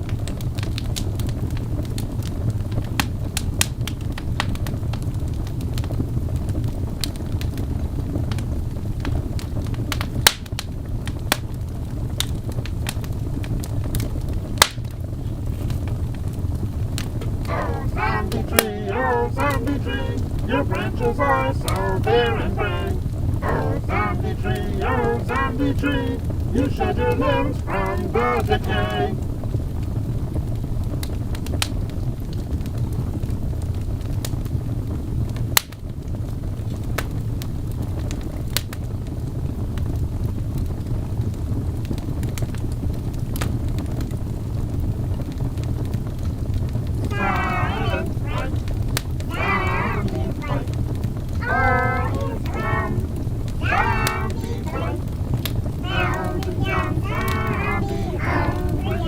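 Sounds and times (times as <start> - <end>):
low rumble of fire: 0.0 - 17.5, 29.2 - 47.8
sharp pops of fire: 14.6 - 16.0.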